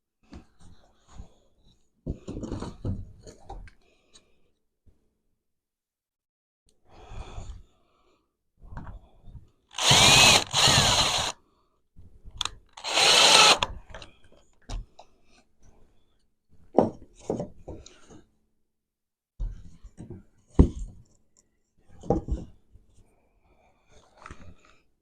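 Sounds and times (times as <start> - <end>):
power drill running: 9.7 - 11.3, 12.8 - 13.7.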